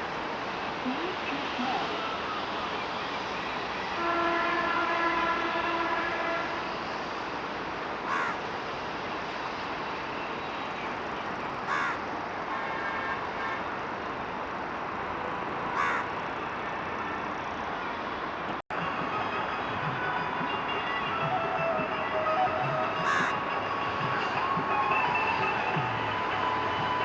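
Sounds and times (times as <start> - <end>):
crow cawing: 8.1 - 8.4, 11.7 - 12.0, 15.7 - 16.2, 23.0 - 23.4.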